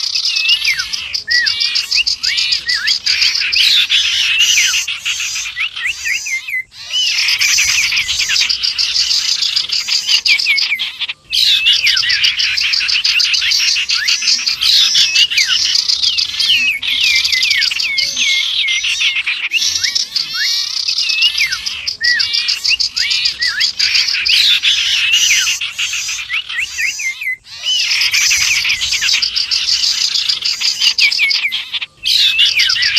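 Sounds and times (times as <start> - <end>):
songbirds chirping and whistling: 0.0 - 32.9.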